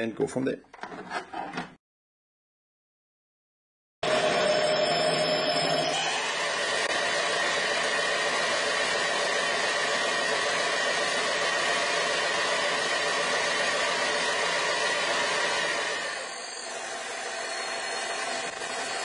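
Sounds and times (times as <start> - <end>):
electric power tool whirring: 4.0 - 19.0.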